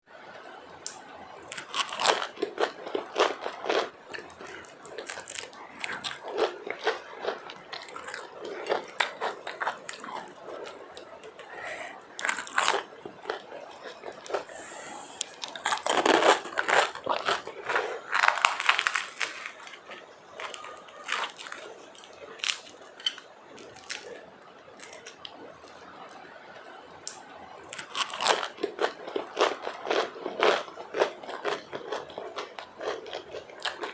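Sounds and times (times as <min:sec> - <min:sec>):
crunchy bites: 0:00.8 - 0:14.5, 0:15.1 - 0:24.2
wet chewing: 0:00.8 - 0:24.2.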